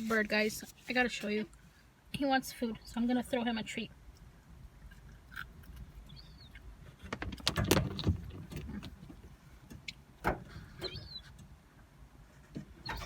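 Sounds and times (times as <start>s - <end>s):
knocks and rustling in car: 7.0s - 11.0s.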